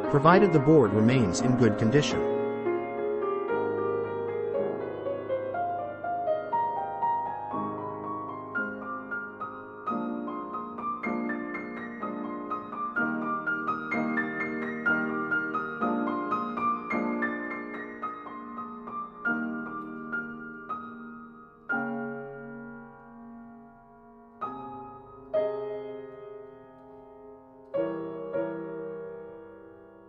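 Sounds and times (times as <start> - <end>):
soft piano music: 0.0 - 30.0.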